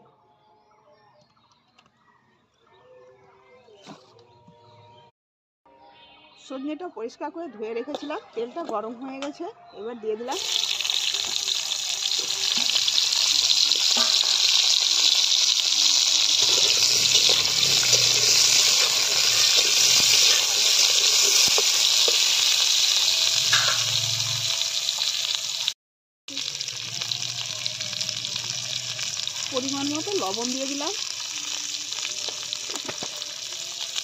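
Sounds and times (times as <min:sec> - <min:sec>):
food frying in oil: 0:10.3 - 0:34.0.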